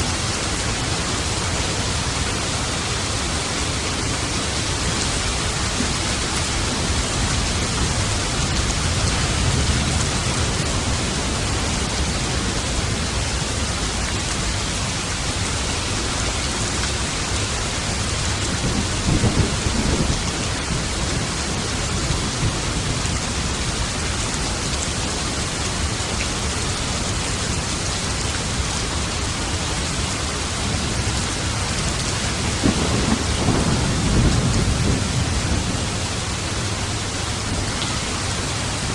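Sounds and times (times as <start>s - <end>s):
heavy rain falling: 0.0s - 38.9s
low thunder rumbling: 17.3s - 23.9s, 31.8s - 37.7s.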